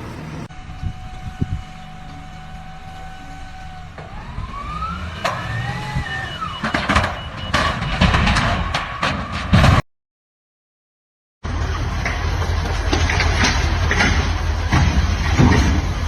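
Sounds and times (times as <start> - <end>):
rising engine whine: 0.0 - 8.4
heavy machinery engine rumbling: 0.0 - 9.8, 11.4 - 16.0.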